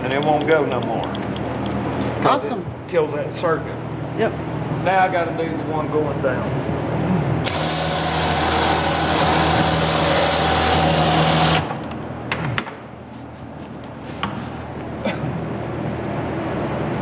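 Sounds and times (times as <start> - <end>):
sharp clicks and knocks: 0.1 - 1.8
electric motor humming and whining: 6.7 - 11.9.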